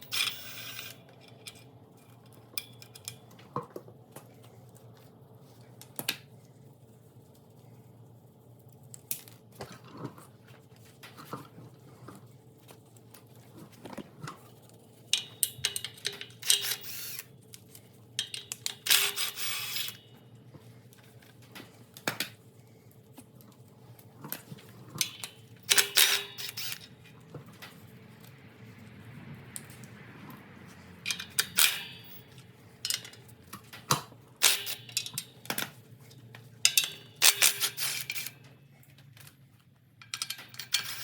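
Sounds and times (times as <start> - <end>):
metal tools clinking and clattering: 34.4 - 35.7, 36.6 - 38.5, 40.0 - 41.0.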